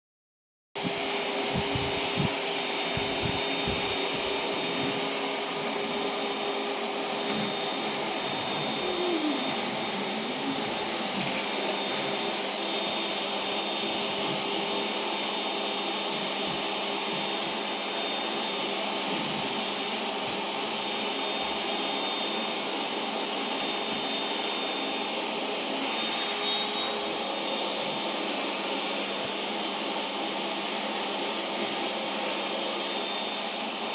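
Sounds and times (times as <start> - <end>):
vacuum cleaner running: 0.8 - 33.9.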